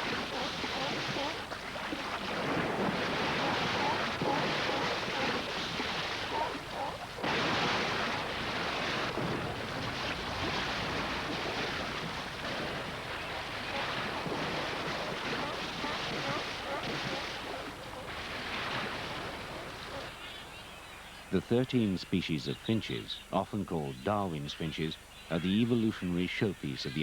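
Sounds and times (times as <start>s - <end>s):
ocean waves breaking on shore: 0.0s - 20.8s.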